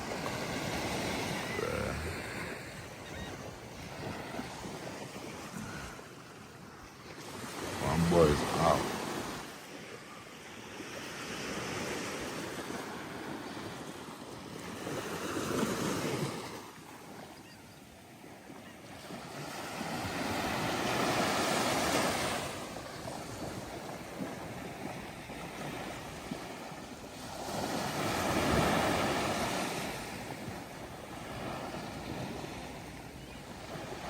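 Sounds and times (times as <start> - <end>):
ocean waves breaking on sand: 0.0 - 34.0.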